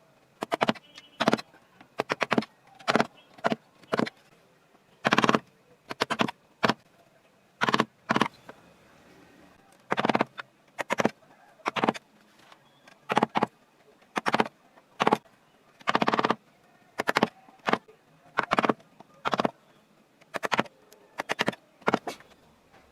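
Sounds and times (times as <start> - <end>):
carving tool scraping wood: 0.4 - 1.4, 5.0 - 6.8, 7.6 - 8.3, 9.9 - 12.0, 14.2 - 15.2, 15.8 - 16.4, 20.3 - 22.3.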